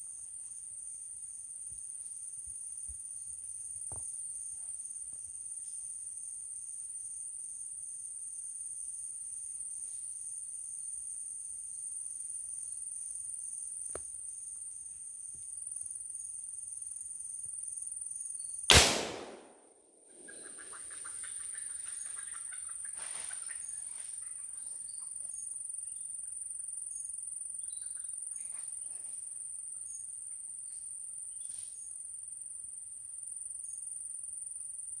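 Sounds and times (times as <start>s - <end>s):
loud gunshot: 18.7s - 19.7s.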